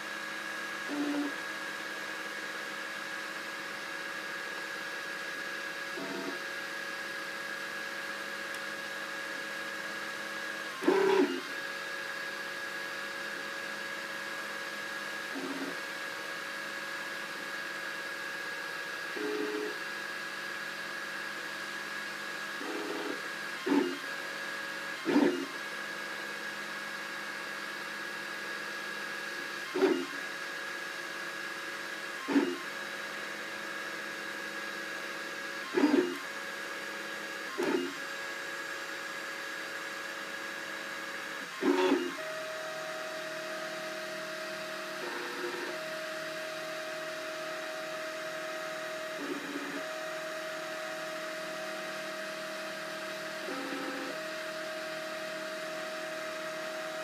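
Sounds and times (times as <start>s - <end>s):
printer motor whine: 0.0s - 57.0s
printer short buzzes: 0.9s - 1.4s, 6.0s - 6.4s, 10.8s - 11.5s, 15.3s - 15.8s, 19.2s - 19.8s, 22.6s - 24.1s, 25.0s - 25.6s, 32.2s - 32.7s, 35.7s - 36.2s, 41.5s - 42.2s, 53.4s - 54.2s.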